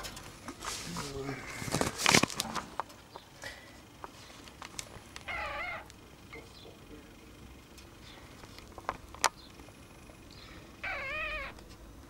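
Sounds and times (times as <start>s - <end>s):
wavering cat-like call: 5.2s - 5.9s, 10.8s - 11.6s.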